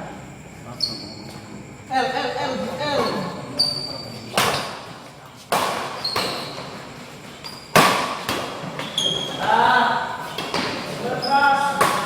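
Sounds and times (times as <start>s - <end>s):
shoes squeaking on court: 0.8s - 1.5s, 3.0s - 12.0s
racket striking shuttlecock: 5.5s - 6.7s, 7.5s - 9.0s, 11.6s - 12.0s.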